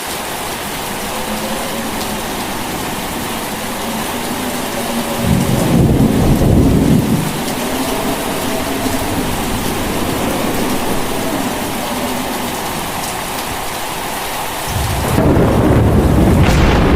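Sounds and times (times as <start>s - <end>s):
rain hissing: 0.0s - 16.9s
thunder rumbling: 0.0s - 16.9s.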